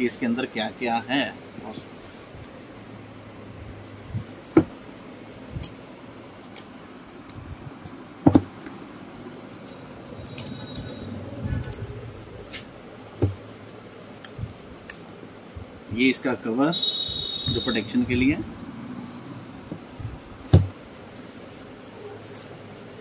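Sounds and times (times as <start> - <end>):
knocks on cardboard box: 4.5 - 4.8, 8.2 - 8.5, 13.2 - 13.4, 20.5 - 20.8.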